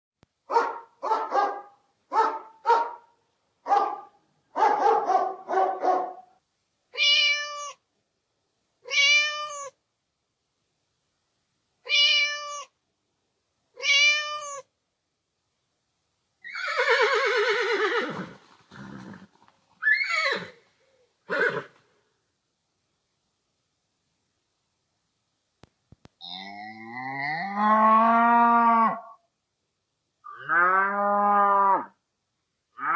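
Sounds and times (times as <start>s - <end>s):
dog barking: 0.5s - 6.4s
cat meowing: 6.9s - 7.8s, 8.8s - 9.8s, 11.8s - 12.8s, 13.8s - 14.7s.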